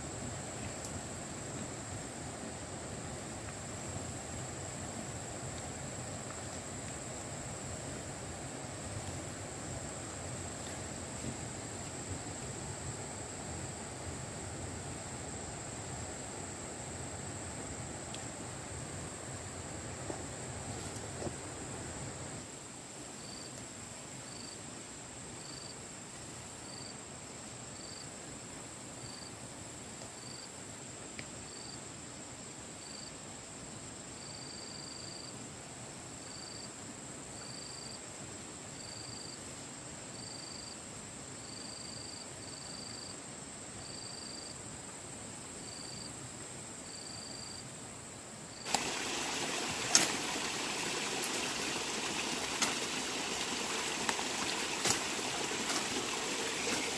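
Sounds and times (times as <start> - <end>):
insects buzzing: 0.0 - 35.4, 41.4 - 44.6, 45.4 - 56.9
insect chirps: 0.0 - 56.9
flowing water rushing: 48.7 - 56.9.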